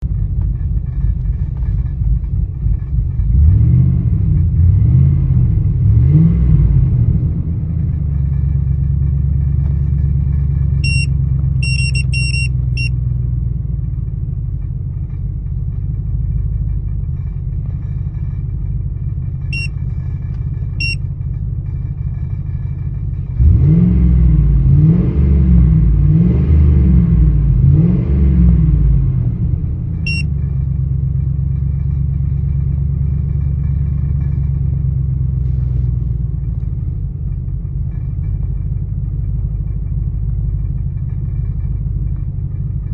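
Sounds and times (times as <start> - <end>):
car engine idling and revving: 0.0 - 42.9
short high-pitched beeps: 10.8 - 12.9, 20.8 - 21.0.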